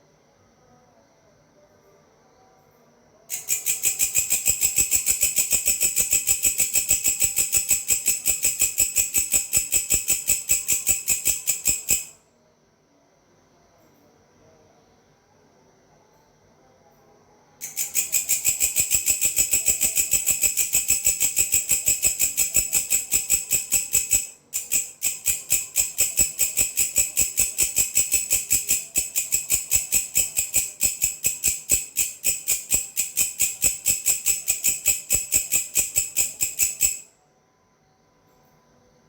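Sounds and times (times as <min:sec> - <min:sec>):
katydid chirping: 0:03.3 - 0:12.2, 0:17.6 - 0:37.0.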